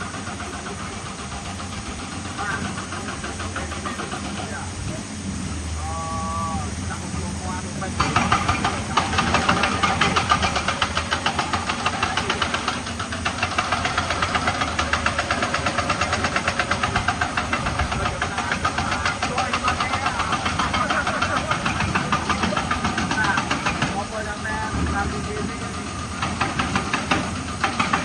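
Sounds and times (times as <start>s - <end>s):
heavy machine engine knocking: 0.0s - 28.0s.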